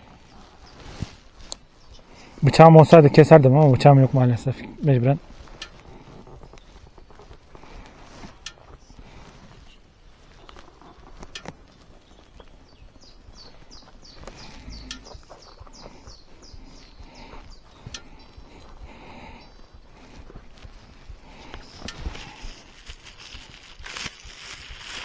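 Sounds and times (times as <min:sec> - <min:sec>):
sharp clicks and rustles: 0:05.3 - 0:12.6, 0:20.5 - 0:25.0.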